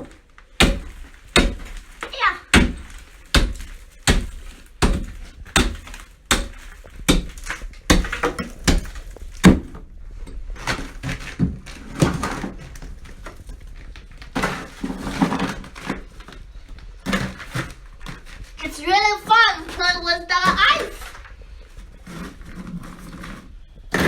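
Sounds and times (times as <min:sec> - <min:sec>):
soft knocks and scraping of ice: 0:00.0 - 0:24.0
hand tool chipping ice: 0:00.6 - 0:09.6.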